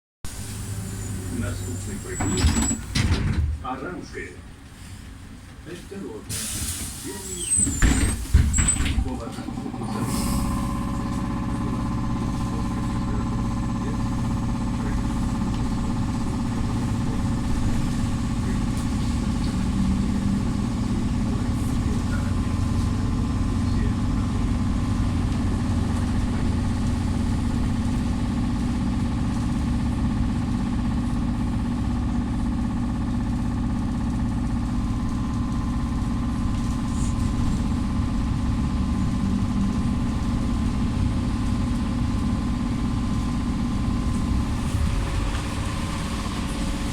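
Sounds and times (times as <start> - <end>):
low rumble of running gear: 7.9 - 46.9.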